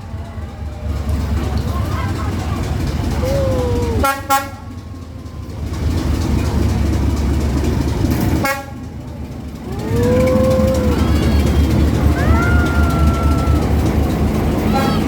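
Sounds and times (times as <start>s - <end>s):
people calling out: 0.0s - 5.7s, 9.5s - 14.1s
train rumbling past: 0.0s - 15.0s
train horn toot: 4.0s - 4.8s, 8.4s - 8.9s, 14.7s - 15.0s.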